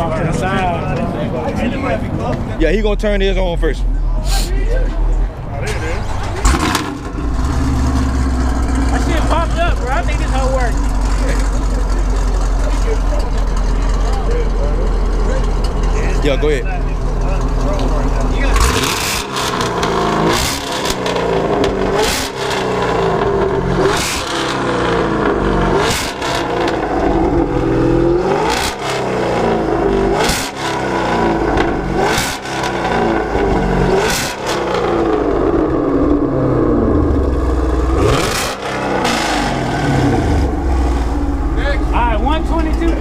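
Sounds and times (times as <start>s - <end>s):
choppy engine idle: 0.0s - 43.0s
car engine revving hard: 6.4s - 12.5s, 18.1s - 42.9s.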